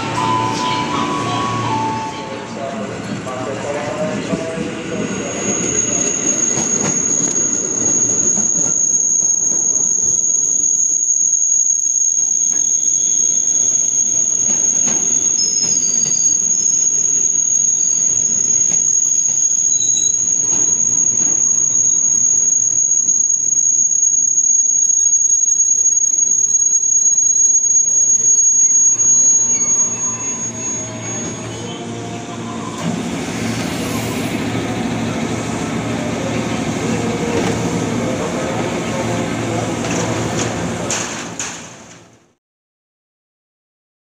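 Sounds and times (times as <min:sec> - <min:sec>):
electric train rumbling: 0:00.0 - 0:42.3
wavering high squeals: 0:04.4 - 0:40.2
steady high-pitched tone: 0:04.9 - 0:40.1.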